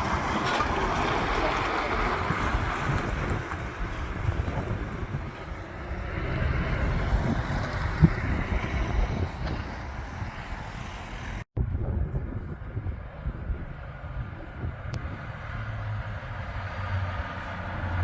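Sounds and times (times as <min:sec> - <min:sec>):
wind buffeting microphone: 0:00.0 - 0:18.0
lorry engine driving past: 0:05.4 - 0:11.4.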